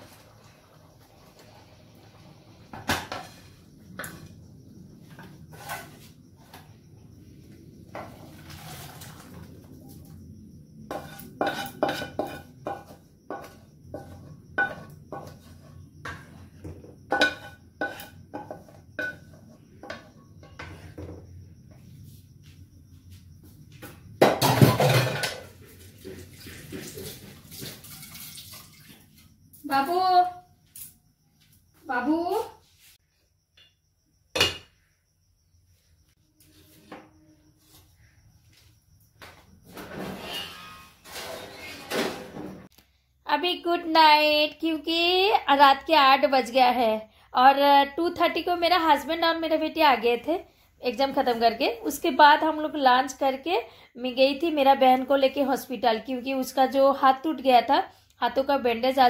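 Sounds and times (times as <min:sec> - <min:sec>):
dishes clattering loudly: 0:17.1 - 0:19.3, 0:24.2 - 0:25.6.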